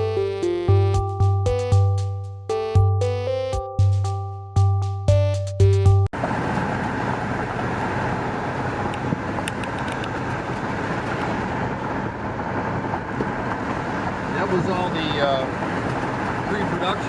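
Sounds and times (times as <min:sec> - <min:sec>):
car road and engine noise: 0:06.1 - 0:17.0.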